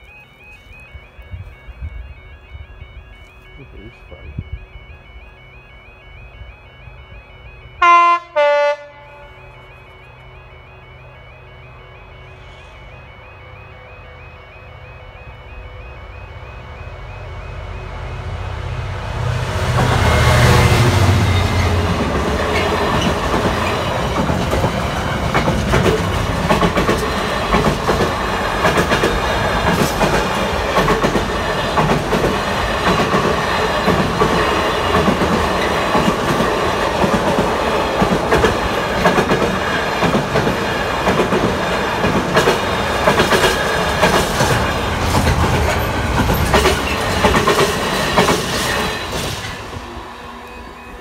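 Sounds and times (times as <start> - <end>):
freight wagons rumbling: 19.7 - 50.4
wheels clicking over rail joints: 21.8 - 49.7.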